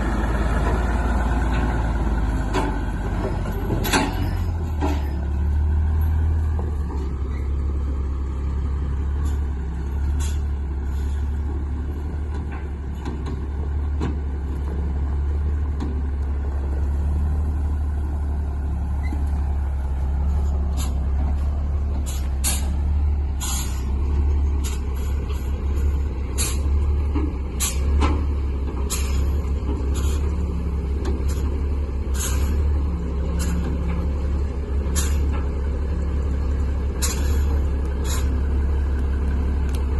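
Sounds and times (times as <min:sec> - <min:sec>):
truck engine droning: 0:00.0 - 0:39.9
metal clanks and rattles: 0:01.4 - 0:07.9, 0:09.0 - 0:14.9.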